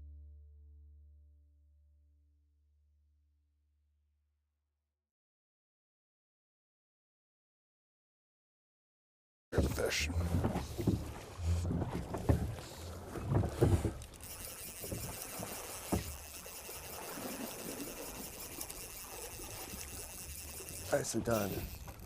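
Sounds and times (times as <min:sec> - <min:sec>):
thumps and knocks in a boat: 0:09.6 - 0:17.6.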